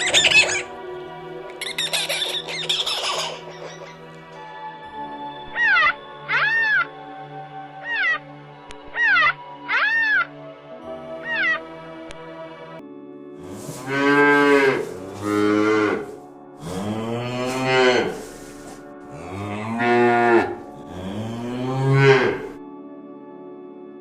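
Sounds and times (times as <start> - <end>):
cow mooing: 13.4 - 22.6.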